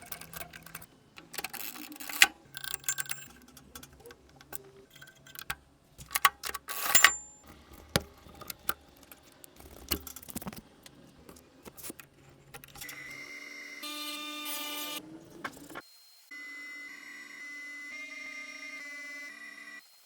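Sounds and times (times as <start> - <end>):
metal mechanism clicking: 0.0 - 13.2
steady ringing tone: 1.7 - 5.5, 6.8 - 7.6.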